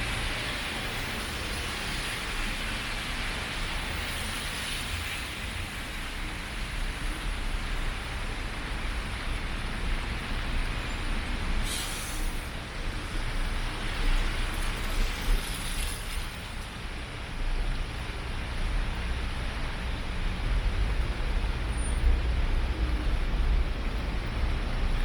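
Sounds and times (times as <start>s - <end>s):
rain: 0.0s - 25.0s
brief hiss: 11.6s - 12.6s.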